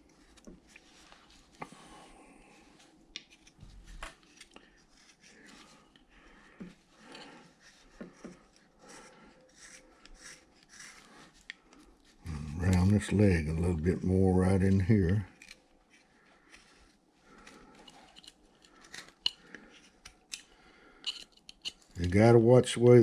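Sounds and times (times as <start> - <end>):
carving blade scraping wood: 7.1 - 11.5, 15.3 - 22.1.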